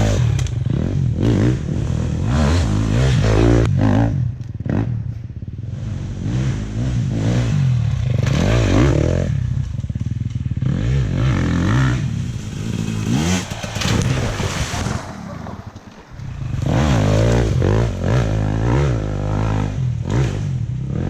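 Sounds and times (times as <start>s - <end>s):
dirt bike engine revving: 0.0s - 5.0s, 5.6s - 21.0s
rattle and clatter: 12.2s - 16.8s.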